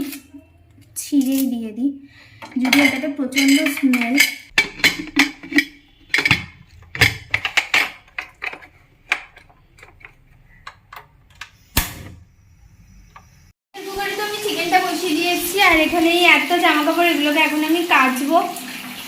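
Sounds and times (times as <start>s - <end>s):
utensils clinking against a pot: 0.0s - 11.1s.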